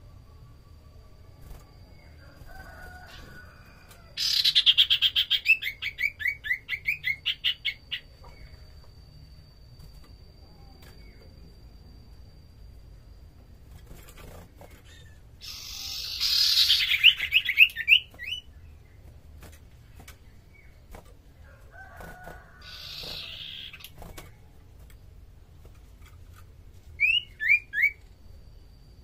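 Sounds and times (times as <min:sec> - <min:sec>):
bird harsh chattering calls: 0:04.2 - 0:08.1, 0:14.8 - 0:18.4, 0:22.6 - 0:24.0.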